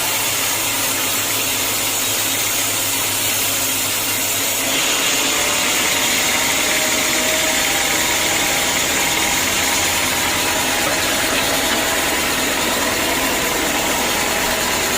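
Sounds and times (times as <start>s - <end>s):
sawmill machinery running: 0.0s - 14.9s.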